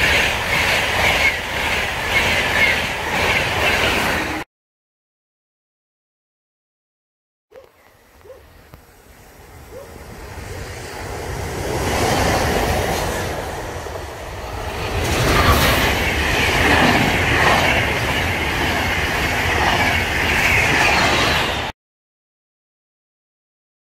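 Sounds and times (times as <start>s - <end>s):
train wheels clattering on rails: 11.9s - 21.7s.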